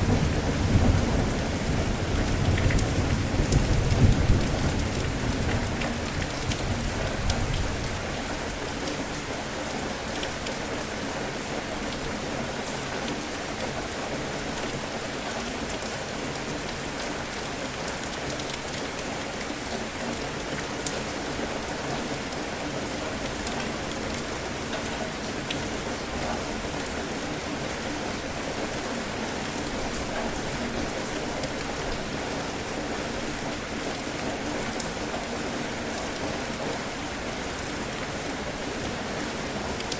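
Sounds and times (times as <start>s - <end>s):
low rumble of thunder: 0.0s - 8.1s
heavy rain falling: 0.0s - 39.9s.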